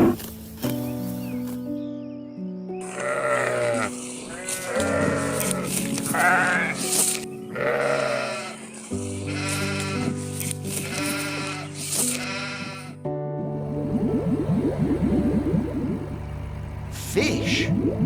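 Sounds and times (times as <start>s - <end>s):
background music with held chords: 0.3s - 18.0s
sheep bleating: 2.8s - 6.9s, 7.5s - 13.0s.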